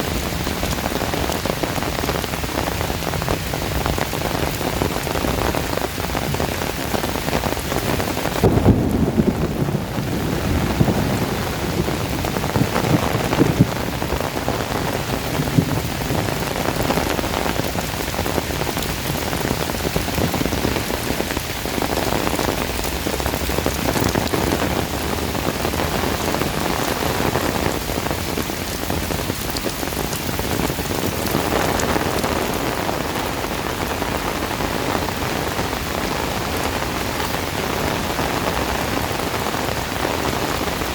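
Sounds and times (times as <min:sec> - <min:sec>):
heavy rain falling: 0:00.0 - 0:40.9
deep rumble: 0:08.4 - 0:21.0.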